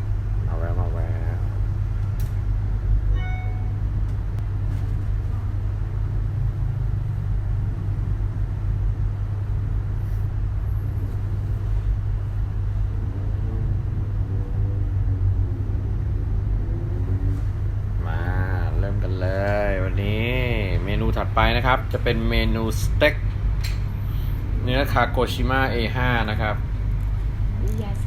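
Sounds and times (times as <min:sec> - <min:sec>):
steady low rumble: 0:00.0 - 0:28.0
short ringing tone: 0:03.1 - 0:04.0.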